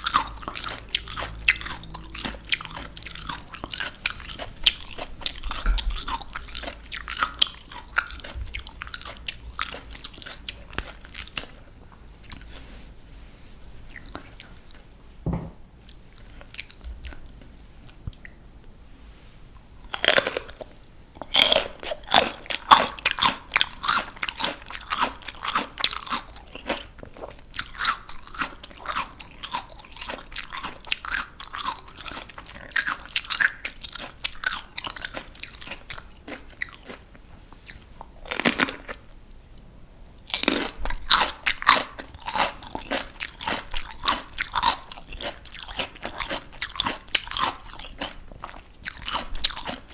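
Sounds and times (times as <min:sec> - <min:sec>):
crunchy vegetables bitten: 0:00.0 - 0:11.6, 0:19.9 - 0:37.1, 0:37.7 - 0:39.2, 0:40.3 - 0:49.9
rapid crunching chews: 0:00.0 - 0:12.6, 0:13.9 - 0:14.8, 0:19.9 - 0:49.9.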